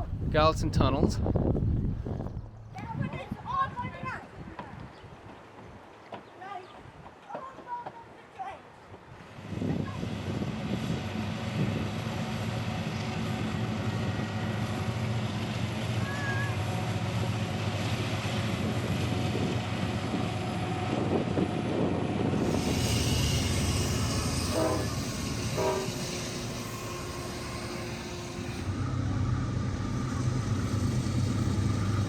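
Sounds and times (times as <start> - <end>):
diesel locomotive engines rumbling: 8.8 - 32.0
wheel and rail hiss: 22.2 - 32.0
train horn: 22.4 - 28.9.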